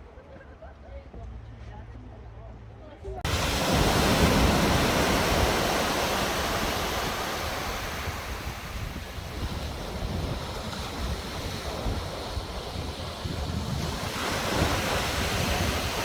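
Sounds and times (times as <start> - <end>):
sea waves washing onto shore: 3.2 - 16.0
wind buffeting microphone: 3.2 - 16.0.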